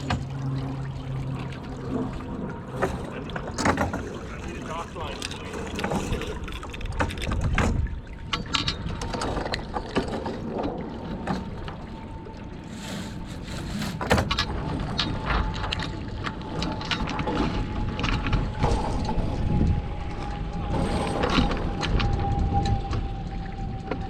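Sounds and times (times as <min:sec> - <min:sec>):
sailboat hull knocks and rattles: 0:00.0 - 0:00.6, 0:02.6 - 0:12.0, 0:13.2 - 0:19.6
wind rumble on microphone: 0:00.0 - 0:24.0.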